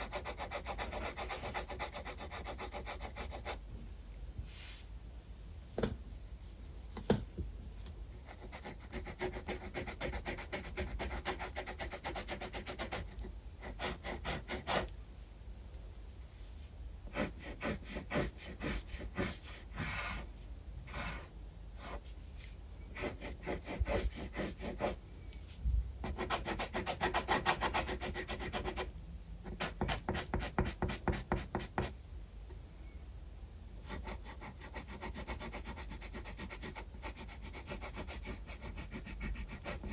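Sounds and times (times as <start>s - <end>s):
pencil scratching on paper: 0.0s - 3.6s, 6.1s - 7.1s, 8.1s - 14.9s, 17.1s - 20.3s, 20.9s - 22.1s, 23.0s - 25.0s, 26.0s - 28.9s, 29.5s - 31.9s, 33.8s - 39.9s.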